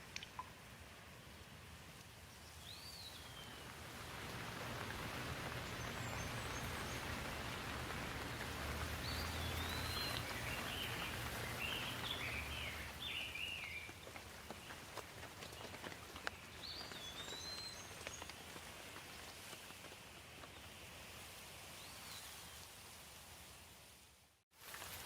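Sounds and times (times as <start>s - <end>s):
steady rain falling: 1.5s - 23.4s, 24.5s - 25.0s
bird chirping: 4.8s - 14.8s, 15.6s - 18.3s.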